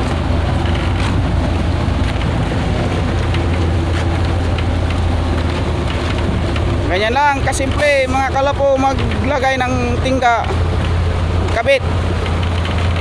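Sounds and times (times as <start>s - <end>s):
faint ticks and knocks: 0.0s - 9.5s, 10.5s - 13.0s
engine droning: 0.0s - 13.0s.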